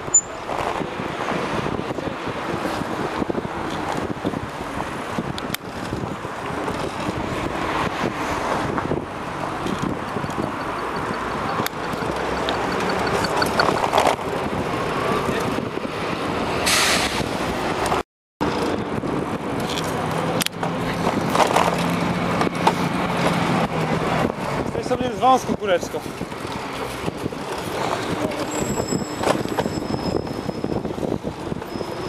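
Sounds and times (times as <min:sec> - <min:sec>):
wind rushing: 0:00.0 - 0:17.8
city street traffic: 0:00.0 - 0:32.0.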